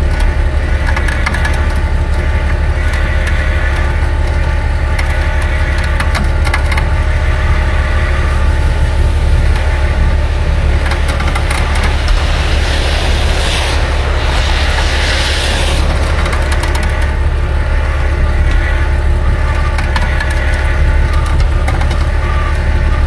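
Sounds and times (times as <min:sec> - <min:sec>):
vehicle engine humming: 0:00.0 - 0:23.0
rushing crunching noise: 0:09.0 - 0:19.4.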